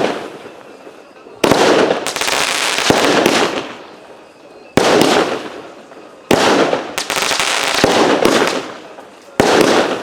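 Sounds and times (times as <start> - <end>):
firework cake bangs: 4.8 - 10.0.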